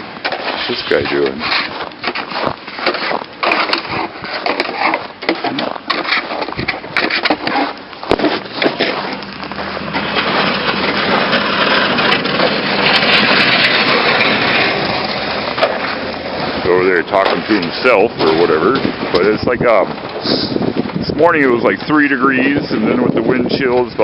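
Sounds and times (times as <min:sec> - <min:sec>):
footsteps crunching in snow: 0:00.0 - 0:19.1
steady rushing noise: 0:00.0 - 0:23.6.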